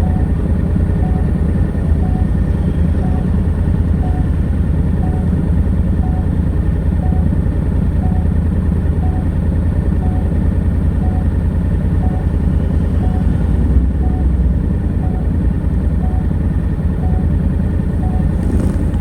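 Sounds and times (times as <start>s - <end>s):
motorcycle engine running: 0.0s - 19.0s
short faint beep: 8.0s - 14.4s, 17.0s - 18.8s.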